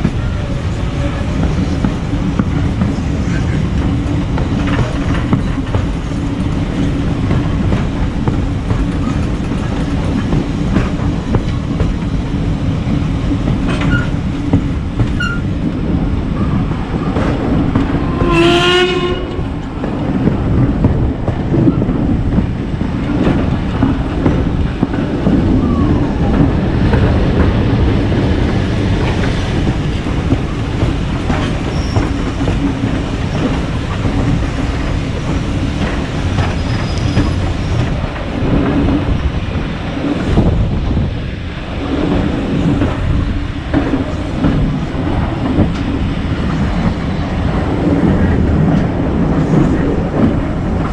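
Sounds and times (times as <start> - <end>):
steam train rumbling: 0.0 - 50.9
train whistle blast: 18.1 - 19.4.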